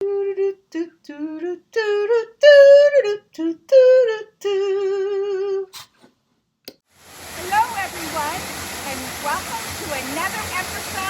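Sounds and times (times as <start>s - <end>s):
woman singing unaccompanied: 0.0s - 5.7s.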